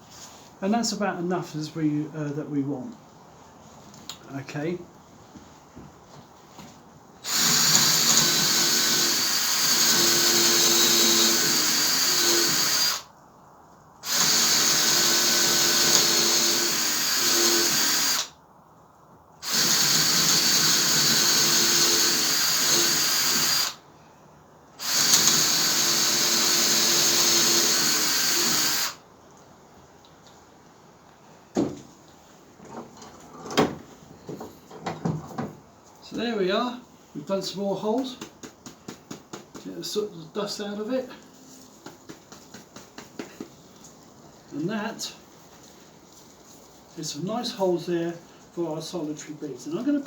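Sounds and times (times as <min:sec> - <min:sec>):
power drill boring into log: 0:07.2 - 0:13.0, 0:14.0 - 0:18.3, 0:19.4 - 0:23.8, 0:24.8 - 0:29.0.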